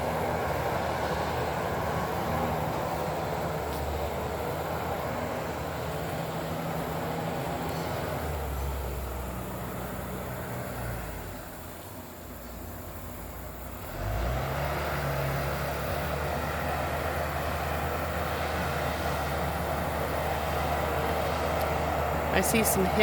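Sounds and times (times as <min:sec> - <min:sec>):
bulldozer diesel engine running: 0:00.0 - 0:23.0.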